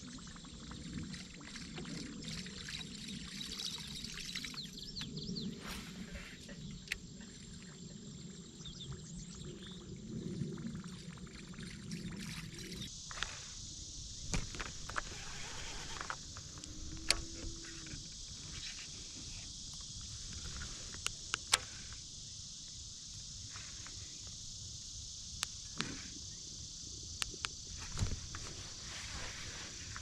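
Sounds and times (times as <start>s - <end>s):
steady high hiss: 12.5s - 30.0s.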